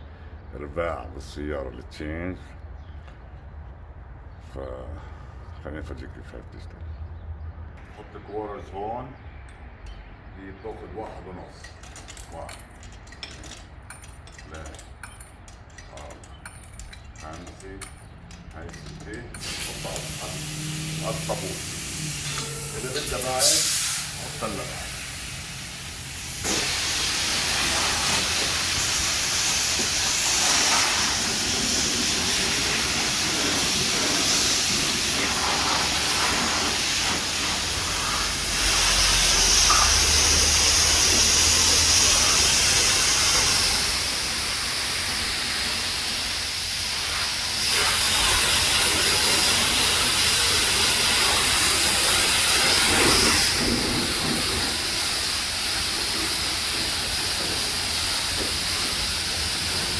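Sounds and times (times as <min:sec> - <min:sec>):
pressure washer spraying water: 0:18.7 - 0:59.9.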